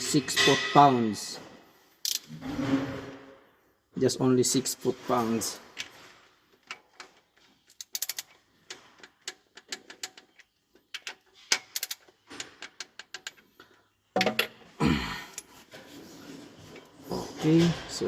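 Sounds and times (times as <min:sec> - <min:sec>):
wrench clicking: 0:07.7 - 0:08.4.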